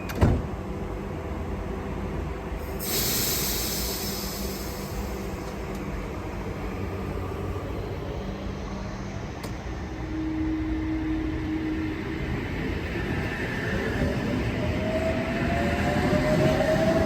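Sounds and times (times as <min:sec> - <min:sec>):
train running by: 0:00.0 - 0:17.0
hiss: 0:02.6 - 0:05.9.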